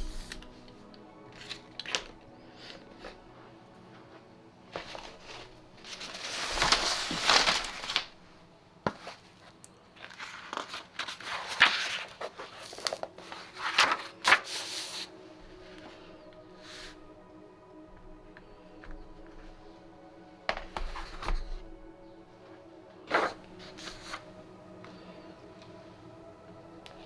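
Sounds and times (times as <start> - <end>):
paper rustling and crinkling: 0.0 - 0.6, 4.7 - 8.2, 8.9 - 15.1, 23.1 - 24.3.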